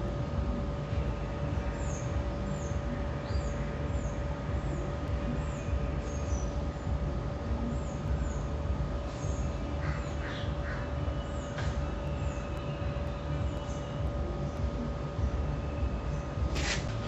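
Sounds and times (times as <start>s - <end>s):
constant hum: 0.0s - 17.0s
steady low rumble: 0.0s - 17.0s
harsh bird calls: 7.6s - 17.0s.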